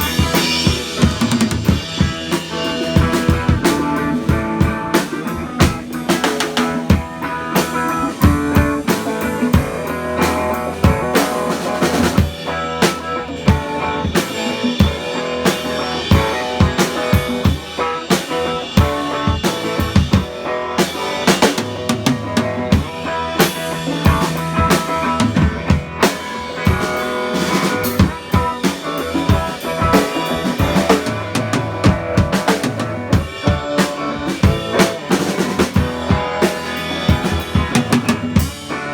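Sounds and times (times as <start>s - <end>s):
drum kit beat: 0.0s - 38.9s.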